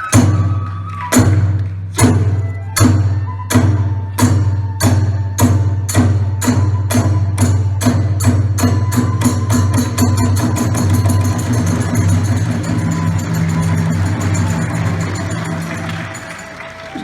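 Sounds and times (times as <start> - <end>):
large drum beating: 0.1 - 16.5
small hand cymbals: 4.8 - 17.0.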